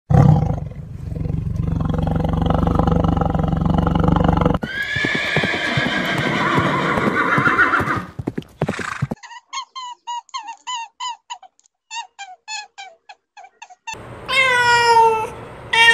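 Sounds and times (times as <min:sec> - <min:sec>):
cheetah purring: 0:00.2 - 0:04.6
hoofbeats: 0:03.8 - 0:09.2
horse whinnying: 0:04.4 - 0:09.2.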